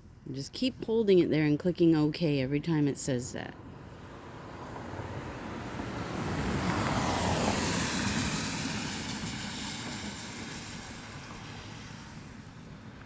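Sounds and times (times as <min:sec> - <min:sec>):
vehicle passing: 0:03.6 - 0:13.0.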